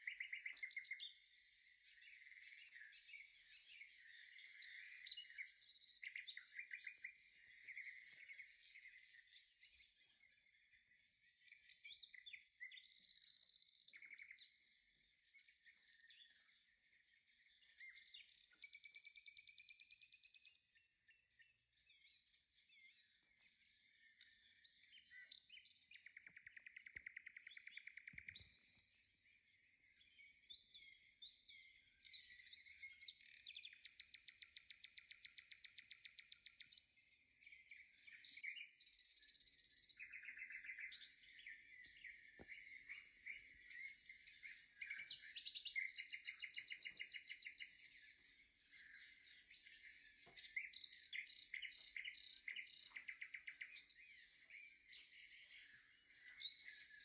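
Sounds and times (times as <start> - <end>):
songbirds chirping: 0.0 - 57.0
faint clicks: 26.1 - 28.5.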